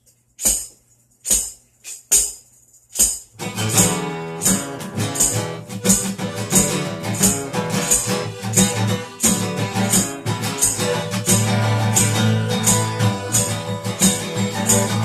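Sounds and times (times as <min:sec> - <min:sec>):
tambourine beat: 0:00.0 - 0:15.0
guitar strumming: 0:03.4 - 0:15.0.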